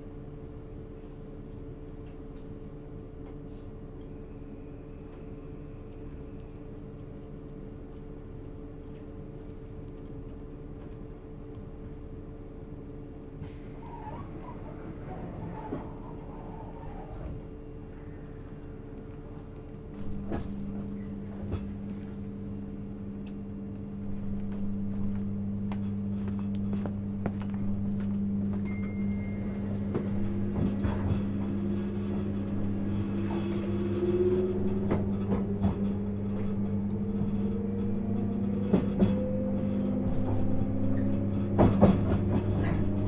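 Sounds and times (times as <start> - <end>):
train motor whine: 13.4 - 17.6, 26.3 - 43.0.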